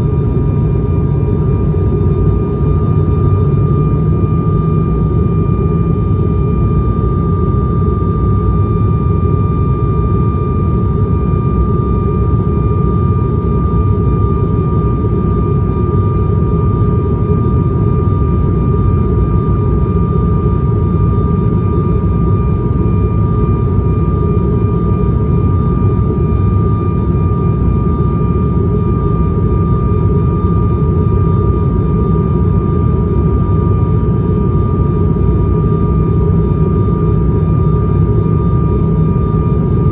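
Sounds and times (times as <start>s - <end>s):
turboprop engine drone: 0.0s - 39.9s.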